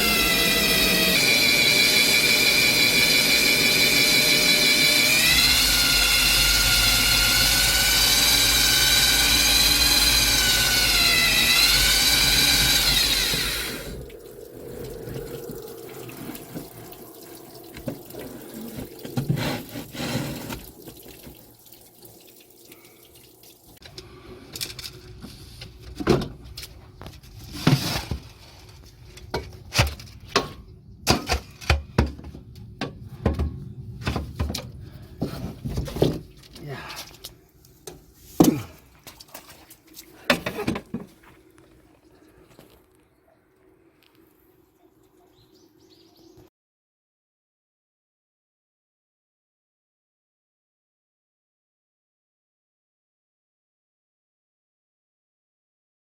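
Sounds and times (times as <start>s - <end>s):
motor-driven machine whining: 0.0s - 14.1s.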